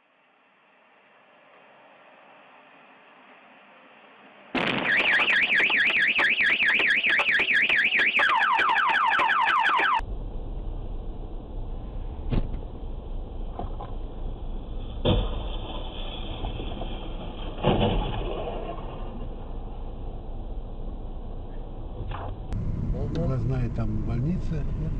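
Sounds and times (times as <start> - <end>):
electronic alarm siren: 4.6 - 10.0
car rumbling on road: 10.0 - 24.9.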